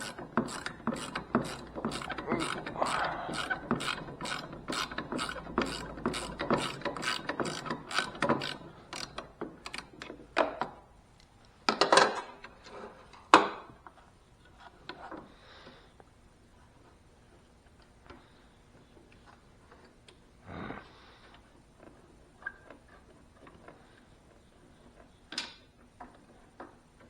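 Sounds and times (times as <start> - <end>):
ratchet wrench clicking: 0.0 - 9.9.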